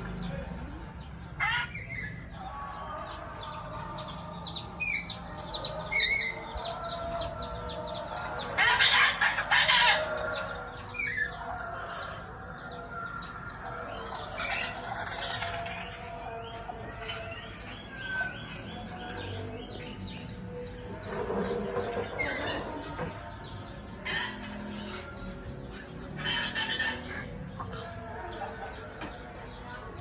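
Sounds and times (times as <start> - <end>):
parrot squawking: 1.4 - 2.3, 8.5 - 10.3, 21.8 - 23.0, 25.8 - 27.4.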